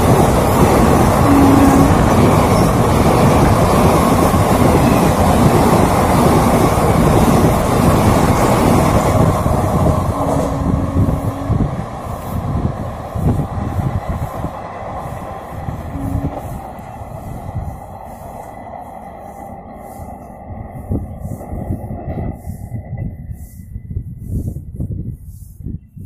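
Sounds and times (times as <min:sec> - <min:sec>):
train wheels clattering on rail: 0:00.0 - 0:24.4
steady tone: 0:00.6 - 0:06.5, 0:08.2 - 0:12.5, 0:15.8 - 0:23.5.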